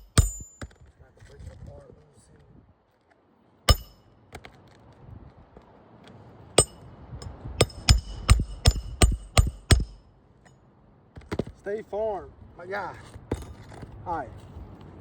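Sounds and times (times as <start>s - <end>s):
hammer striking nails: 0.0s - 0.8s, 3.7s - 4.0s, 7.6s - 10.0s.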